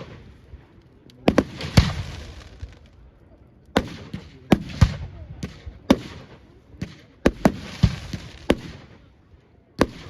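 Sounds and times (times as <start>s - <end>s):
fireworks bangs: 0.0s - 3.0s, 3.7s - 9.1s.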